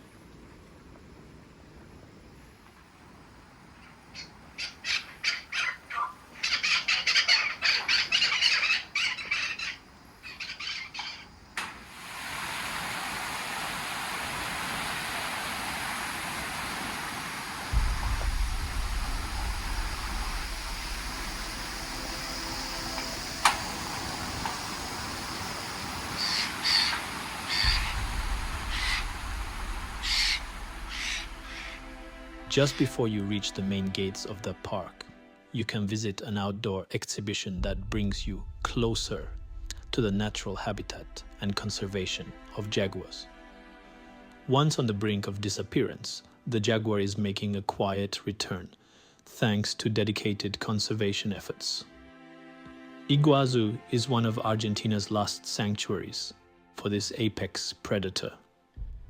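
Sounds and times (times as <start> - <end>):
background hiss: 0.0 - 52.0
birds making harsh calls: 3.8 - 11.4, 25.4 - 32.8
low rumble: 17.6 - 26.2, 27.2 - 34.6, 37.5 - 44.4, 58.8 - 59.0.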